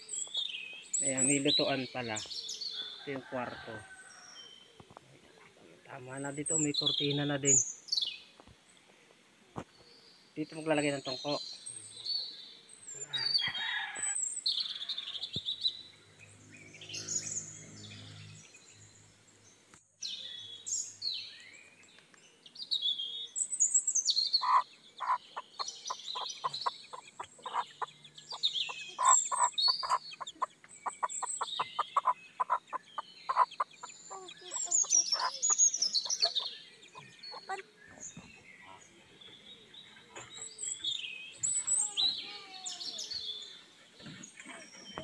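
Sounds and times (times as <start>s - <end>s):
hen clucking: 24.4s - 37.7s
chicks peeping: 24.4s - 38.8s.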